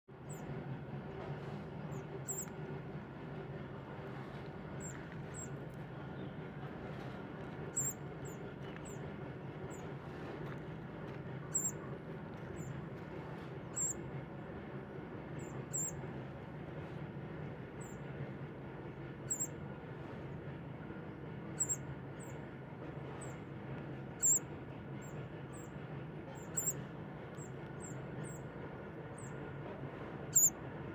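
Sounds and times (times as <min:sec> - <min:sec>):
steady low hum: 0:00.2 - 0:30.9
short high bird chirps: 0:30.3 - 0:30.5.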